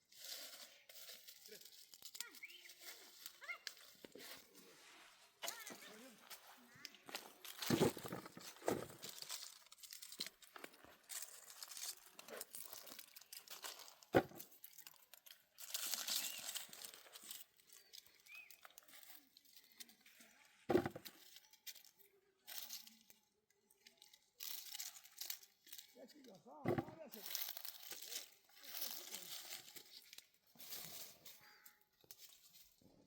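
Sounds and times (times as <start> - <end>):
dry plants rustling and crunching: 0.0 - 33.0
dull thumps: 26.6 - 27.0.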